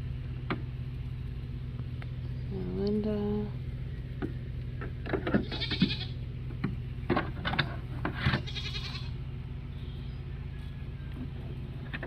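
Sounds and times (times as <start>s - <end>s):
goats bleating: 5.3s - 6.2s, 8.2s - 9.2s.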